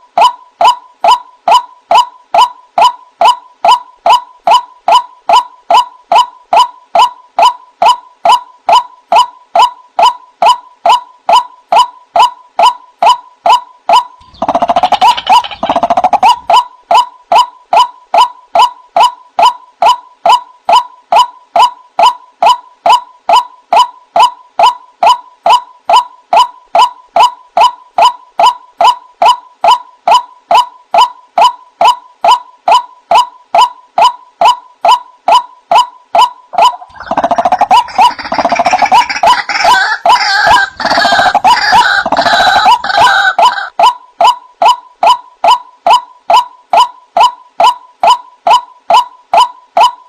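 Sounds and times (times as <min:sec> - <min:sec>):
waterhen calling rising notes: 0:08.3 - 0:22.6, 0:34.4 - 0:50.0
harsh bird chatter: 0:14.2 - 0:16.2, 0:36.9 - 0:43.3.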